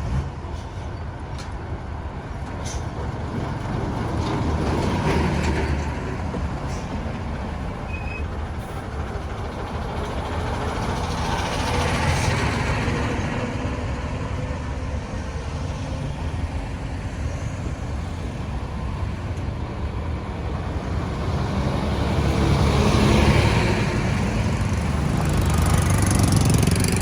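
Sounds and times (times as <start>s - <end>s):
engines rumbling: 0.0s - 27.0s
vehicle passing close: 20.6s - 27.0s.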